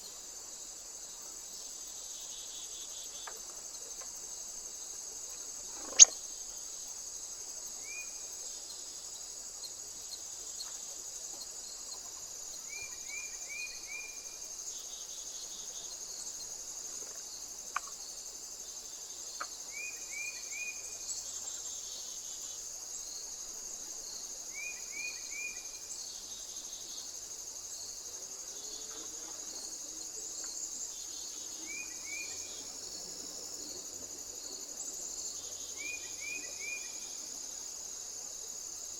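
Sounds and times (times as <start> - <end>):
high-pitched insect chorus: 0.0 - 38.9
short insect chirps: 1.8 - 10.8, 19.3 - 38.9.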